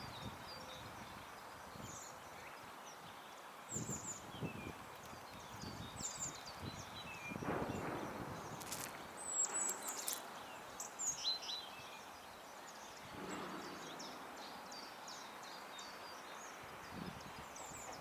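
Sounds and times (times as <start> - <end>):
songbirds chirping: 0.0 - 18.0
soft rustling: 8.5 - 10.9.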